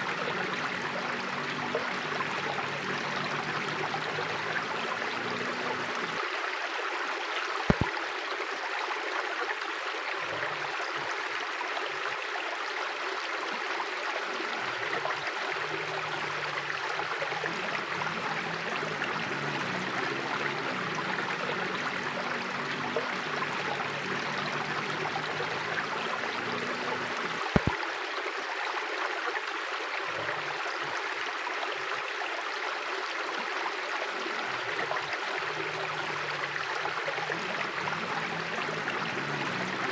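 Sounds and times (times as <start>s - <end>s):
river water rushing: 0.0s - 7.0s, 13.3s - 29.0s, 31.9s - 39.9s
sharp clicks: 27.4s - 27.8s.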